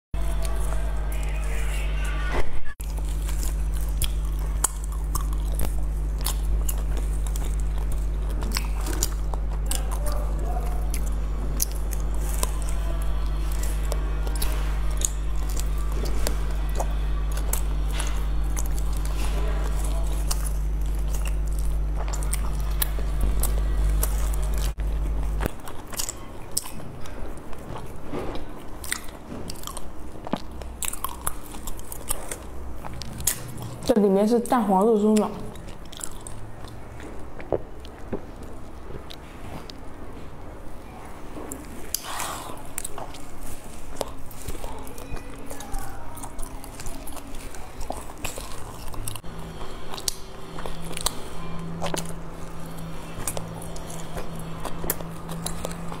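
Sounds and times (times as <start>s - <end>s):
low electrical hum: 0.2s - 56.0s
chewing with wet mouth clicks: 2.8s - 40.0s, 41.5s - 56.0s
wet mouth clicks: 41.9s - 43.3s.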